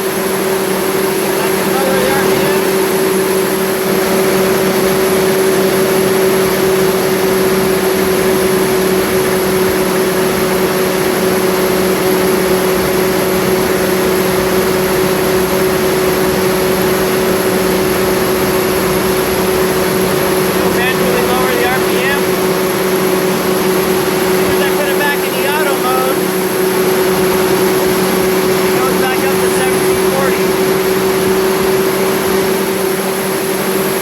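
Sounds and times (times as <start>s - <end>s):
pump engine humming: 0.0s - 34.0s.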